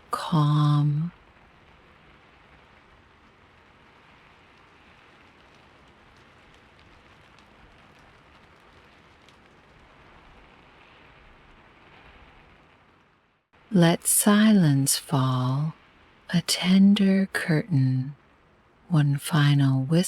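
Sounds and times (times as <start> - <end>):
rain pattering: 0.0 - 20.0
raindrop ticks: 0.9 - 13.1.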